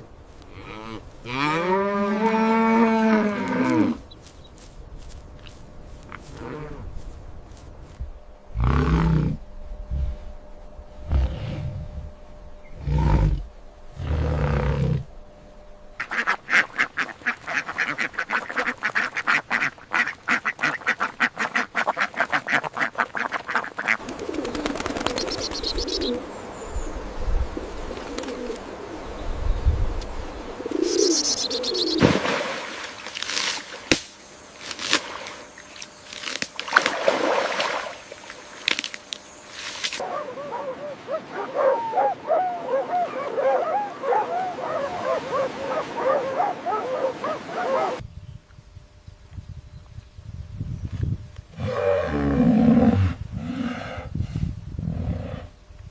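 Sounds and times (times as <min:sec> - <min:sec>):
ducks quacking: 0:16.0 - 0:26.1.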